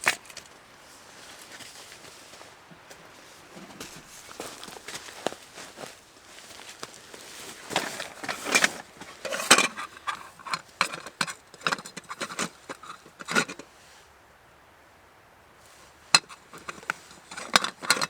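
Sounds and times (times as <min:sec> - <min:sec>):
objects being handled: 0:01.6 - 0:13.7, 0:15.8 - 0:18.0.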